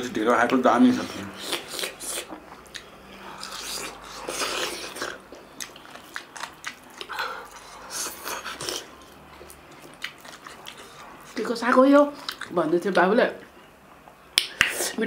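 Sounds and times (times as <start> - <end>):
people chewing and lip-smacking: 0.5 - 12.6.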